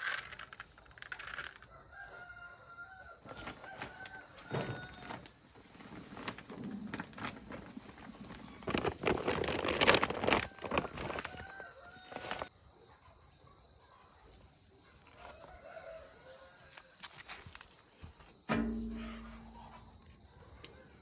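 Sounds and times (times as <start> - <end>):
loud rustling: 8.2 - 12.5.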